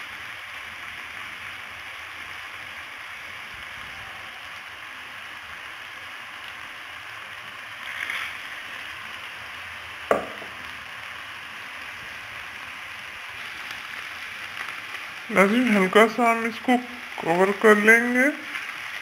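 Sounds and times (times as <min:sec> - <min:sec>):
liver sizzling in oil: 0:00.0 - 0:19.0
sharp knock: 0:10.1 - 0:10.6.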